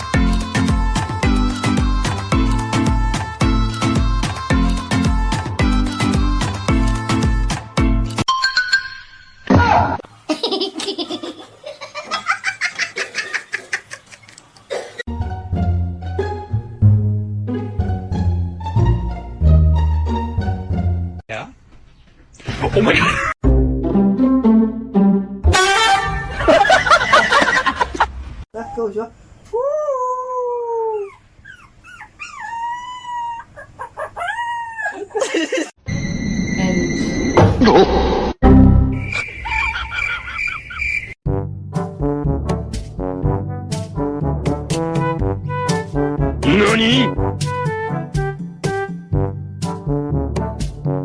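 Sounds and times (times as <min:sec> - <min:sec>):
person laughing: 0:10.3 - 0:14.3, 0:22.7 - 0:23.4, 0:26.3 - 0:28.1, 0:34.9 - 0:35.7
dog yelping: 0:30.9 - 0:35.2
short falling squeal: 0:35.8 - 0:38.3.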